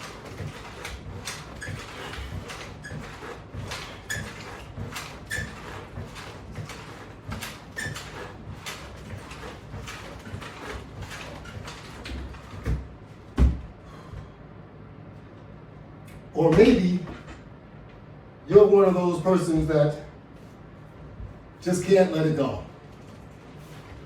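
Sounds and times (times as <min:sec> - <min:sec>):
heavy thump: 0:12.7 - 0:13.8.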